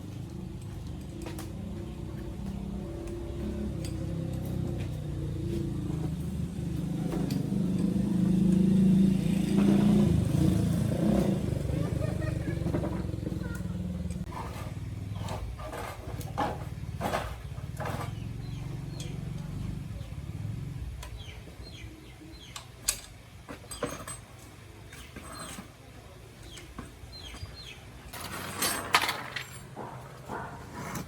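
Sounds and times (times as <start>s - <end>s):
small motorbike engine idling: 0.0s - 23.0s.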